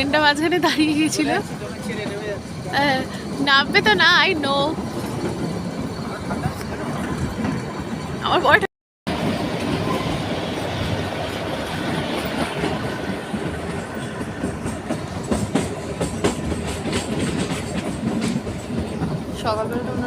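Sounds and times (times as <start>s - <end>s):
train coach rumbling and rattling: 0.0s - 20.0s
wheels clicking over rail joints: 10.7s - 20.0s.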